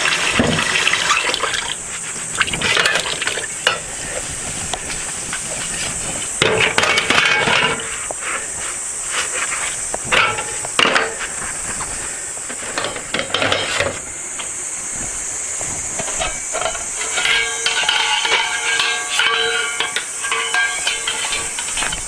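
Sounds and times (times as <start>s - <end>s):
cicada chorus: 0.0s - 22.0s
knocks and clatter: 15.6s - 22.0s.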